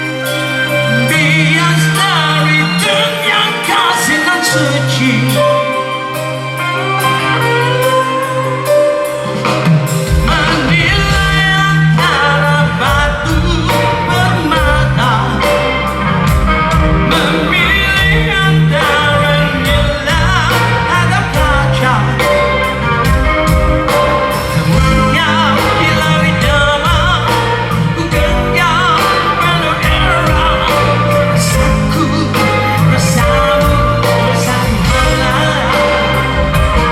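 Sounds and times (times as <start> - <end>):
live rock band playing: 0.0 - 36.9
person singing: 0.0 - 36.9.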